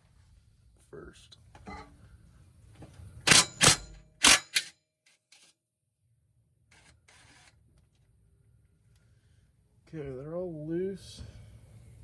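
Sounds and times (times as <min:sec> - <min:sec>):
cordless impact wrench hammering: 0:03.3 - 0:04.7.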